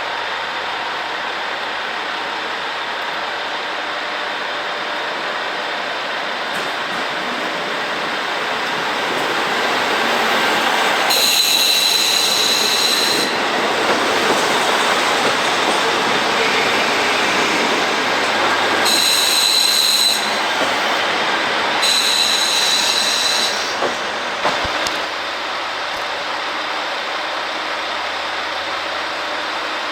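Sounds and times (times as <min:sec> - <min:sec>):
train rolling rumble: 0:00.0 - 0:29.9
train wheels squealing on rails: 0:06.2 - 0:25.6.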